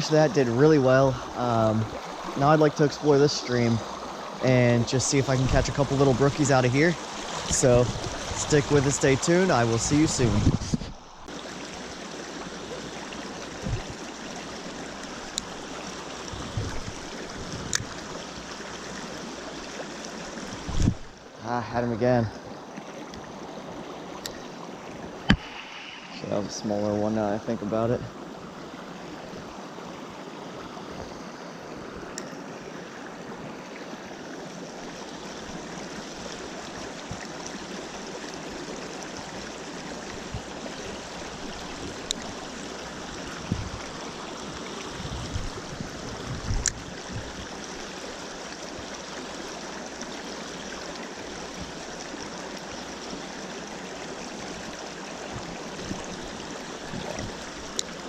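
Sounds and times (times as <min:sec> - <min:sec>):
stream running over rocks: 0:00.0 - 0:58.0.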